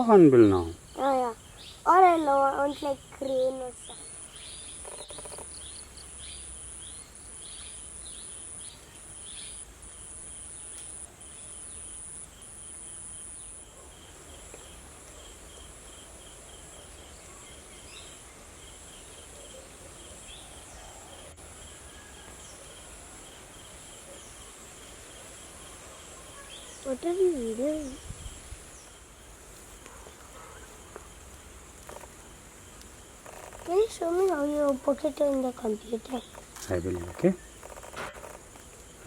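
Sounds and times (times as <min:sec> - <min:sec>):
insects trilling: 0:00.0 - 0:39.0
steady high hiss: 0:00.0 - 0:39.0
bird chirps: 0:00.6 - 0:09.6.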